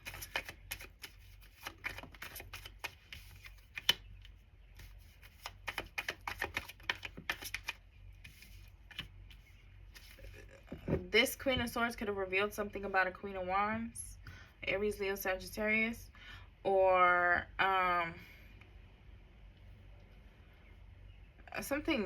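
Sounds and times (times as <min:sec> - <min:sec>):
cards being shuffled by hand: 0:00.0 - 0:10.8.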